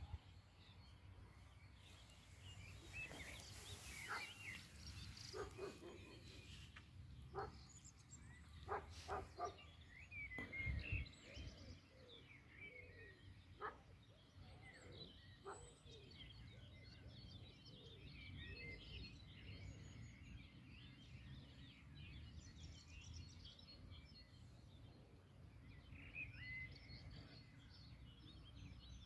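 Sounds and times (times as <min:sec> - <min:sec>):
faint birds chirping: 0:00.0 - 0:29.0
soft rustles near microphone: 0:02.0 - 0:06.9.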